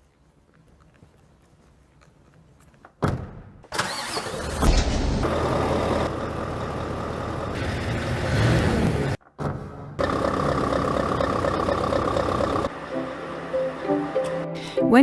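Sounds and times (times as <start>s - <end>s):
truck engine starting and idling: 3.6s - 14.5s.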